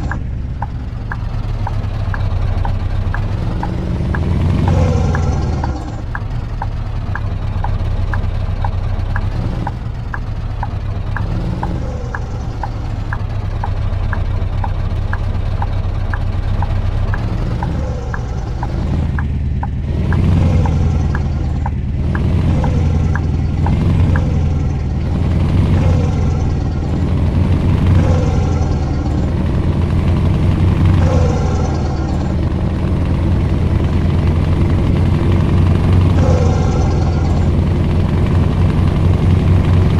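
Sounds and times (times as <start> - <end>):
light regular ticking: 0.0 - 2.2, 3.1 - 8.2, 15.1 - 24.4
truck engine droning: 0.0 - 39.9.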